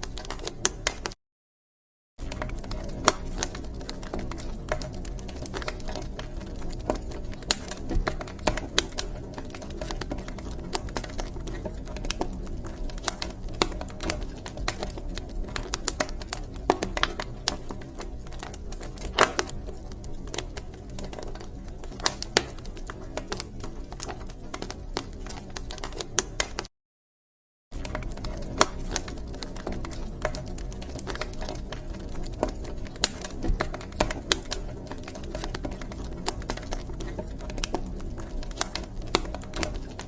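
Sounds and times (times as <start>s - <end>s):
wood fire crackling: 0.0s - 1.2s, 2.2s - 26.7s, 27.8s - 40.0s.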